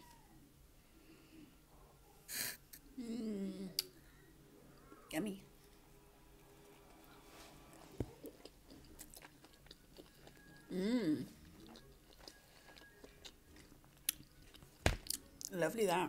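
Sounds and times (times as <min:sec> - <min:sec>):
person chewing food: 0:06.6 - 0:15.5.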